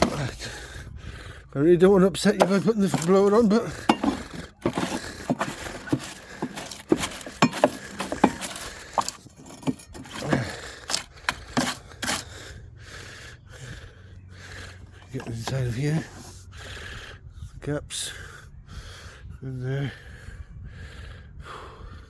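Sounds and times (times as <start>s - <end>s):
scraping and knocking plastic housing: 0.0s - 0.5s, 2.2s - 12.3s, 15.0s - 16.3s.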